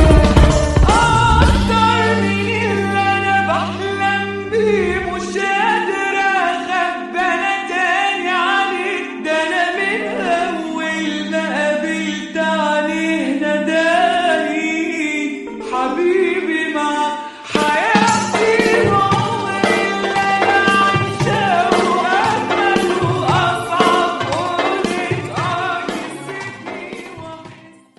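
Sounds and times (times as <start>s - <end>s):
deep bass note: 0.0s - 5.6s
held low drone note: 0.0s - 6.1s
person singing ornamented melody: 0.0s - 27.9s.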